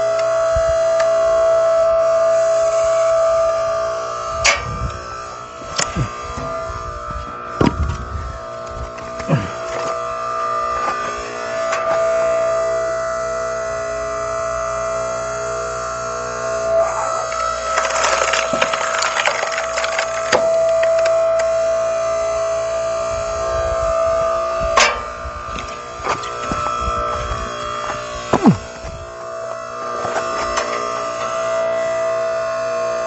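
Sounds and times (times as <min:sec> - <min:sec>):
hydraulic log splitter whine: 0:00.0 - 0:33.0
wood cracking and splintering: 0:17.0 - 0:21.2.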